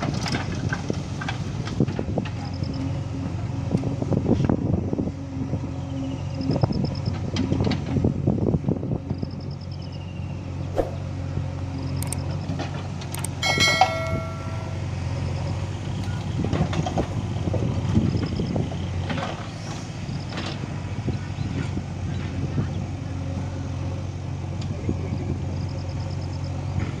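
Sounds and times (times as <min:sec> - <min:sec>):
diesel engines running: 0:00.0 - 0:27.0
ringing metallic clang: 0:13.4 - 0:15.1.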